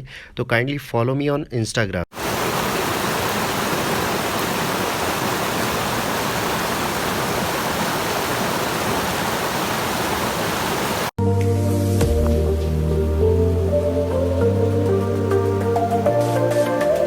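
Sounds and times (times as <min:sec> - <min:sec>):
stream water flowing: 0:02.1 - 0:11.2, 0:13.4 - 0:16.4.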